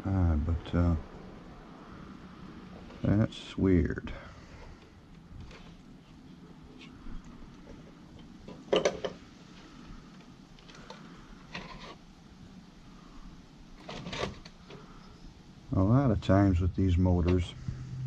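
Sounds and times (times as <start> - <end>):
vacuum cleaner parts rattling: 8.5 - 9.2.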